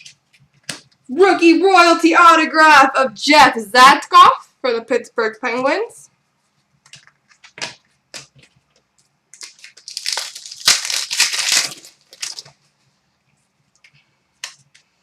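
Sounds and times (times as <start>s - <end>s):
trading cards clicking and tapping: 6.8s - 9.6s
foil wrapper crinkling and tearing: 9.4s - 12.6s.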